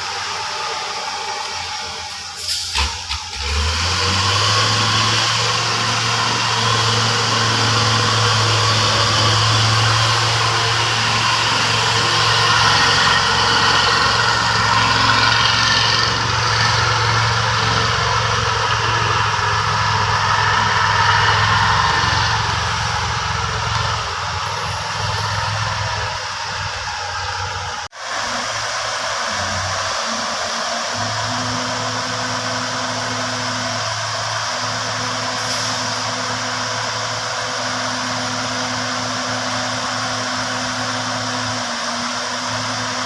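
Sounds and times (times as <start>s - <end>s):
heavy diesel engine running: 0.0s - 43.0s.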